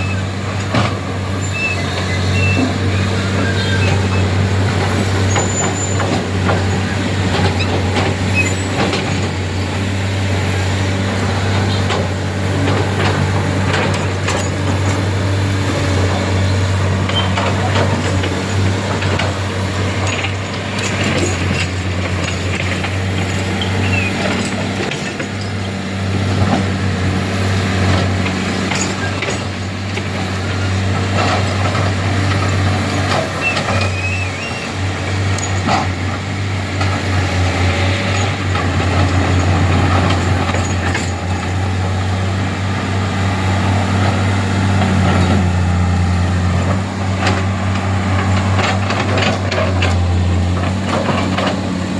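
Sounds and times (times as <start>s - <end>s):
heavy diesel engines droning: 0.0s - 51.9s.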